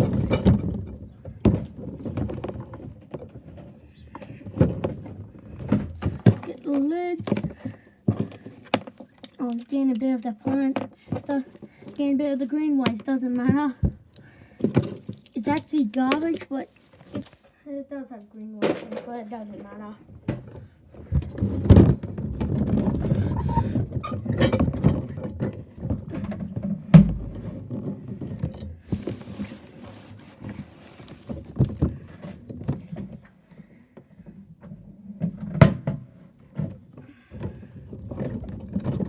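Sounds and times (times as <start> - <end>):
toy truck knocking and rattling: 4.3 - 17.4.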